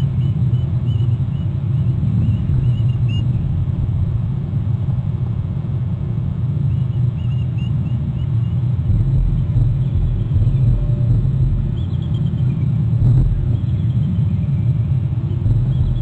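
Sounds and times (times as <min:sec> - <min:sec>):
loud low rumble: 0:02.0 - 0:06.6, 0:07.9 - 0:16.0.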